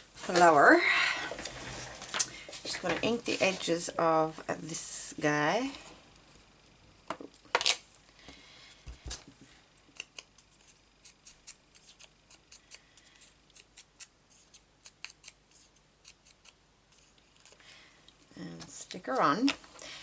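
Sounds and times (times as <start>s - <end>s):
paper clicks and snips: 9.9s - 17.6s.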